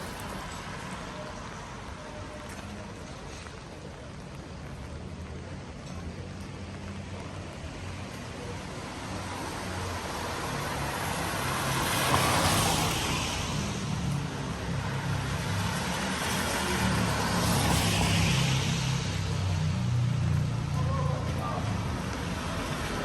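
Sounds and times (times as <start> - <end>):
car tyres hissing on wet road: 7.5 - 19.9.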